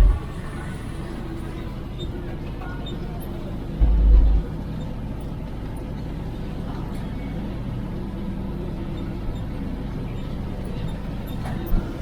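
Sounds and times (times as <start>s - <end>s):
truck diesel engine running: 0.0s - 2.5s, 3.5s - 4.8s.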